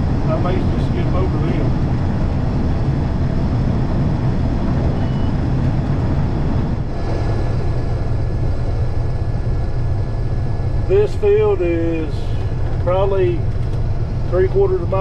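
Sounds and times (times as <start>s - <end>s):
combine harvester running: 0.0s - 15.0s
faint high whine: 4.9s - 5.4s.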